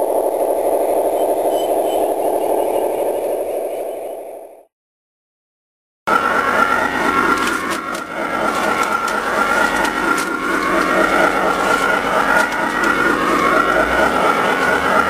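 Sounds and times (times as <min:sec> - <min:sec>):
wavering whine: 0:00.0 - 0:04.7, 0:06.1 - 0:15.0
train running along track: 0:06.1 - 0:15.0.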